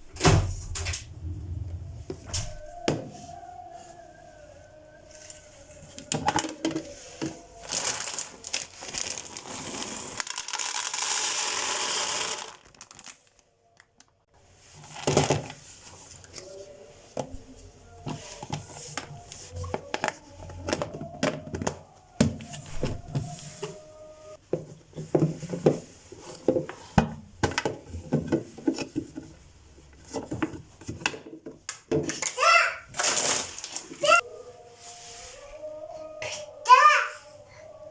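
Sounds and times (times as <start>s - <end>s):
plastic packaging crinkling: 7.2s - 14.2s, 33.0s - 34.0s
containers knocking and clicking: 18.0s - 22.5s, 24.5s - 29.4s.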